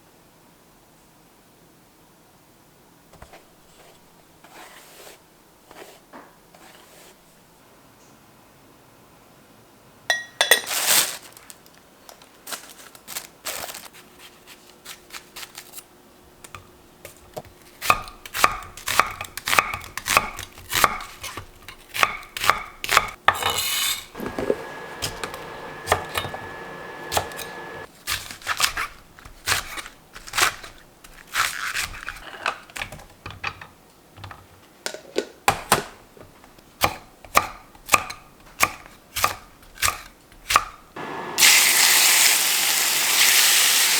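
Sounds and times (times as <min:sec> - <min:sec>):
knife chopping on cutting board: 0:17.8 - 0:32.2, 0:36.8 - 0:40.8.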